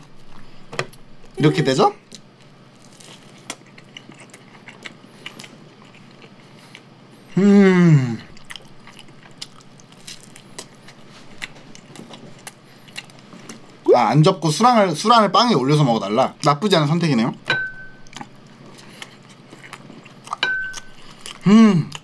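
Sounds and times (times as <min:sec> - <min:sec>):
person chewing with wet smacks: 0:03.0 - 0:06.9, 0:08.3 - 0:13.8, 0:18.0 - 0:22.0
mmm hum through full mouth: 0:04.9 - 0:09.0, 0:20.7 - 0:22.0.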